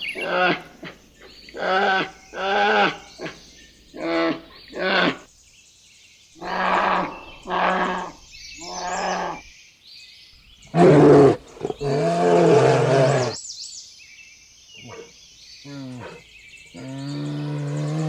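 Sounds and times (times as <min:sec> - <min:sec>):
leopard rasping calls: 0:06.4 - 0:09.5, 0:10.7 - 0:13.4.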